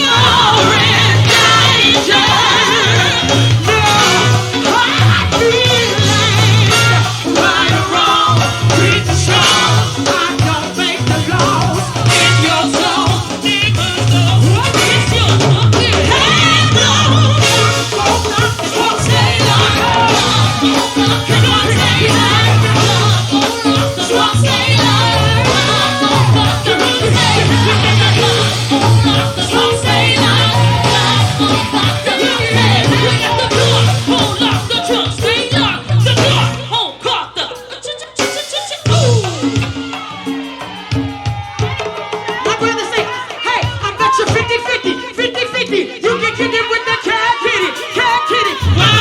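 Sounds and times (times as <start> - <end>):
steady bass line: 0.0 - 36.8, 48.6 - 49.0
live band playing: 0.0 - 49.0
person singing: 0.0 - 49.0.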